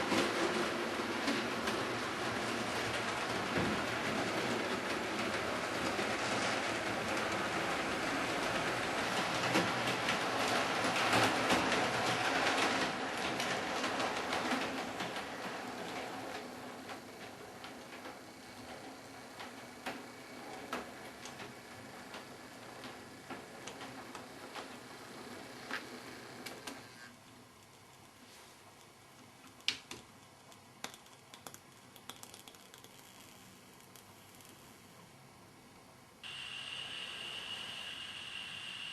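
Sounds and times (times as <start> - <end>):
irregular track clicks: 0.0 - 28.2
model train wheels on rail: 0.0 - 38.9.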